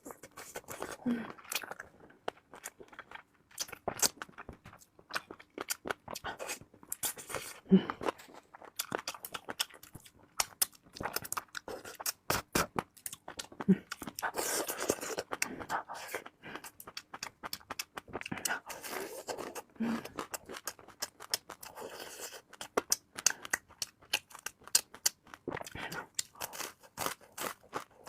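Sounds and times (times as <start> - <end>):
chewing and gnawing: 0.0 - 28.0
wet mouth clicks and smacks: 22.5 - 26.3.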